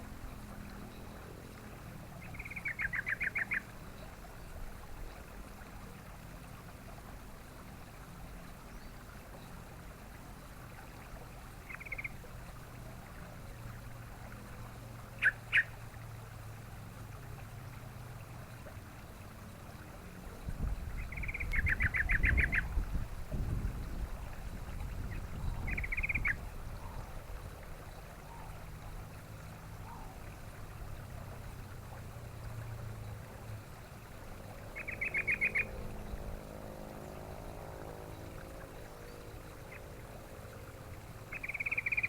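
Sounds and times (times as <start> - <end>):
bird trilling: 2.3 - 3.6, 15.2 - 15.7, 21.0 - 22.7, 25.7 - 26.4, 34.8 - 35.8, 41.3 - 42.0.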